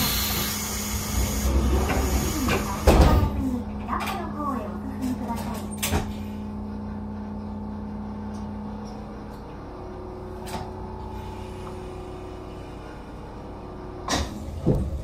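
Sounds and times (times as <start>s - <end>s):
railcar motor hum: 0.0s - 15.0s.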